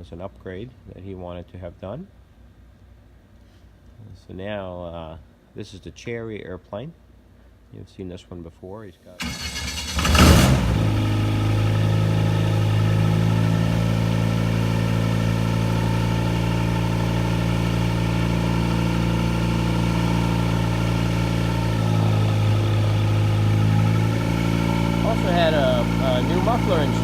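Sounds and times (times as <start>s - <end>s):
aircraft engine idling: 9.2s - 27.0s.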